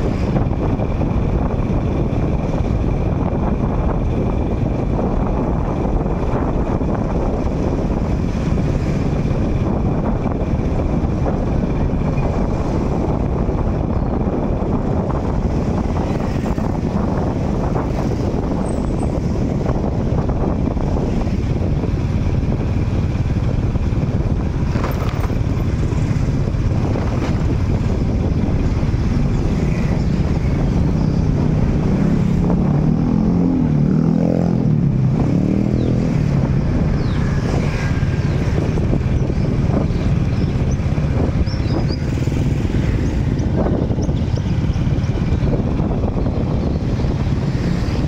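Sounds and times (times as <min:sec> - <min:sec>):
motorcycle traffic: 0:00.0 - 0:48.0
motorcycle passing close: 0:22.5 - 0:48.0.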